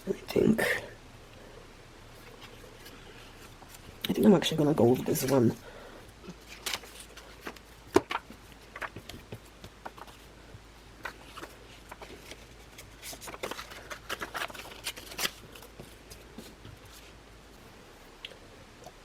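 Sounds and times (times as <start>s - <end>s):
paper rustling: 6.3s - 10.3s, 11.0s - 17.2s.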